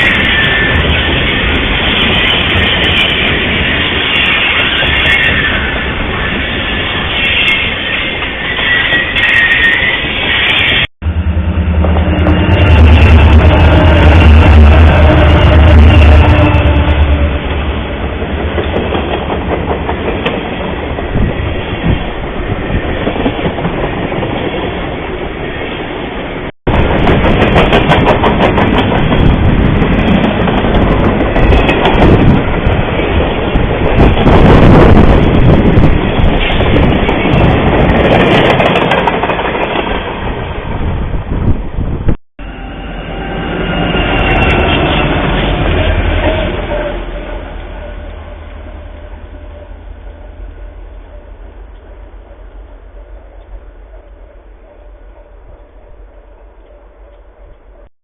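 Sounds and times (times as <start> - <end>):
train wheels clattering over rail joints: 26.8 - 33.0.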